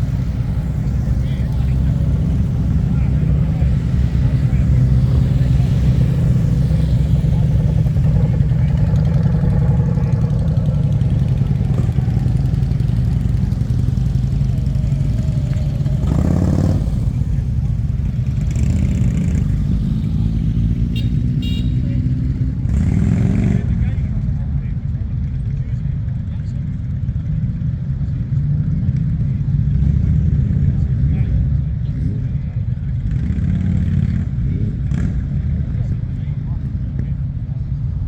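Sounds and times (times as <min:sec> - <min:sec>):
motorcycle engines running: 0:00.0 - 0:38.0.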